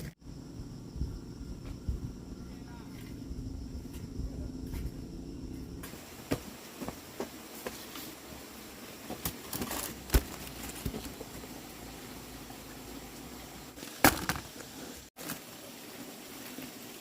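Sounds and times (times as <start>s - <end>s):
dry corn plants rustling: 9.1s - 11.4s, 13.8s - 15.5s.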